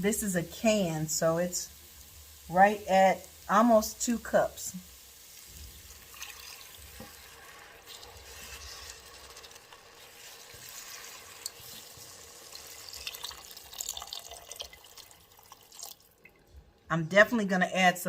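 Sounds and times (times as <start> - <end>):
liquid pouring into pot: 5.0 - 16.4.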